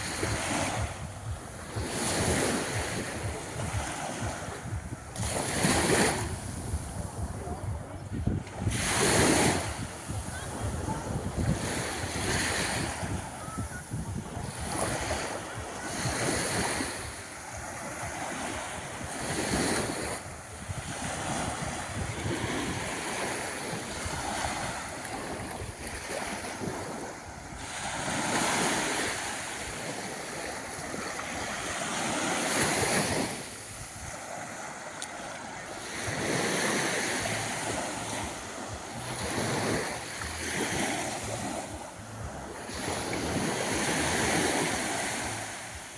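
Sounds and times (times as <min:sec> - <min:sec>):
wind buffeting microphone: 0:00.0 - 0:34.2
waves washing on sandy shore: 0:00.0 - 0:45.9.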